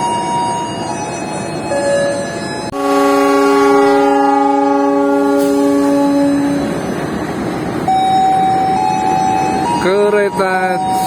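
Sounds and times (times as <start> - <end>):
train horn blast: 2.7 - 6.7.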